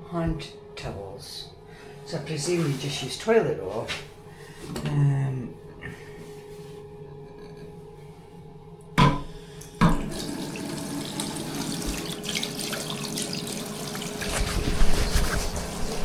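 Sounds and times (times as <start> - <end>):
water running into a sink: 9.8 - 16.0.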